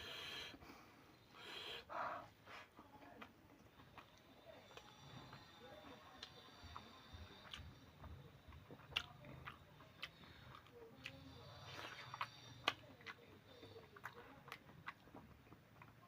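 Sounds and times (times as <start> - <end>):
person chewing: 6.2 - 16.0.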